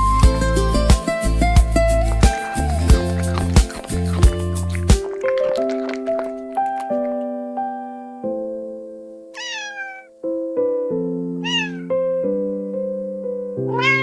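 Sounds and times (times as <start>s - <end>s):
kitten meowing: 9.4s - 10.1s, 11.4s - 11.9s, 13.7s - 14.0s.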